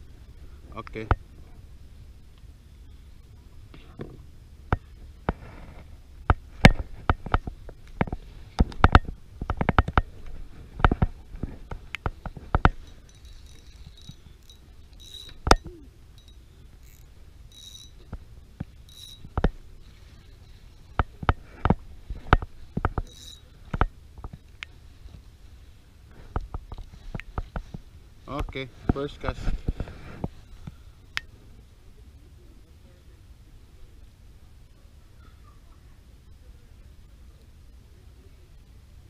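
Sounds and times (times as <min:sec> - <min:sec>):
fishing tackle clicks and knocks: 0:06.2 - 0:19.6, 0:20.6 - 0:24.7.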